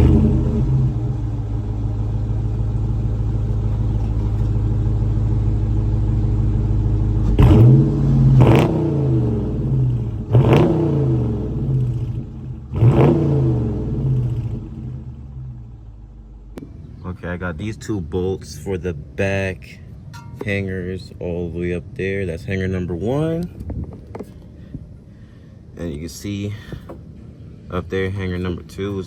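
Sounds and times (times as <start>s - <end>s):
car engine idling and revving: 0.0s - 29.0s.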